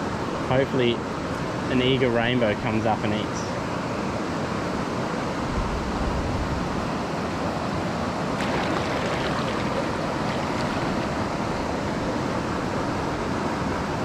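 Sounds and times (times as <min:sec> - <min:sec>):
stream water rushing: 0:06.8 - 0:14.0.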